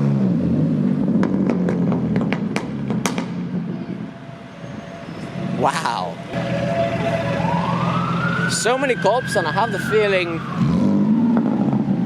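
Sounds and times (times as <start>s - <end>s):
sharp exhaust pops: 0.8s - 3.6s.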